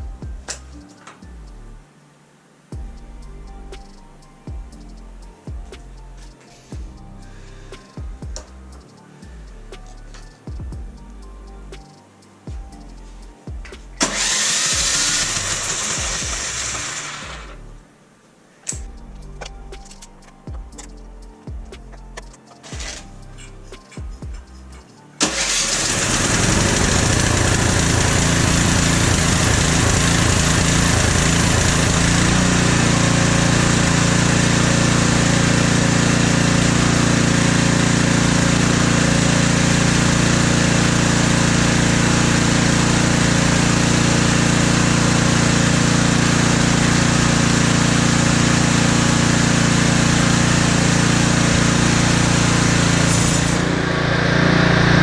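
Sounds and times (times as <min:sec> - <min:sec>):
snowblower engine running: 0:14.0 - 0:16.7, 0:25.2 - 0:55.0.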